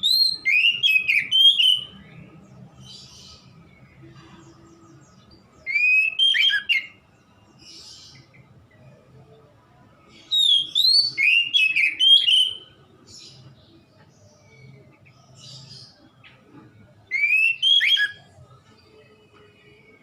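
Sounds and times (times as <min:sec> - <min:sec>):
bird singing whistled phrases: 0:00.0 - 0:02.1, 0:05.6 - 0:07.0, 0:10.3 - 0:12.8, 0:17.1 - 0:18.4.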